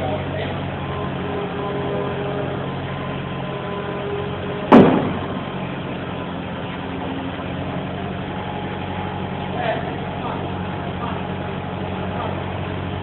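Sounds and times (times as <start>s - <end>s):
loader engine running: 0.0s - 13.0s
loud sharp bang: 4.7s - 5.6s.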